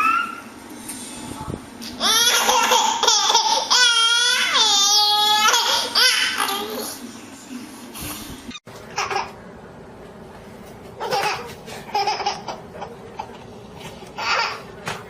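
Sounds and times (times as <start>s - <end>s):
baby laughing: 2.0s - 7.0s, 8.9s - 9.4s, 11.0s - 13.4s, 14.1s - 14.7s.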